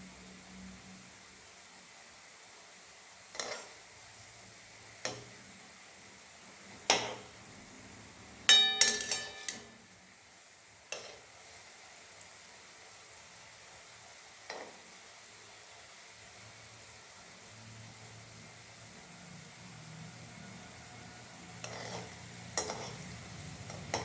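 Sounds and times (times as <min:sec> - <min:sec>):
oil sizzling: 0:01.7 - 0:24.0
metal spoon clinking on pan: 0:08.5 - 0:09.8.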